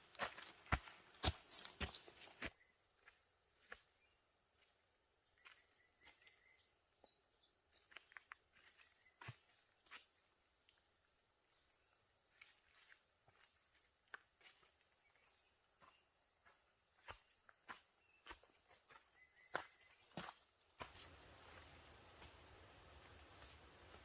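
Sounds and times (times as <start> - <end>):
high insect drone: 2.5 - 18.5
short bird-like chirps: 9.0 - 9.6.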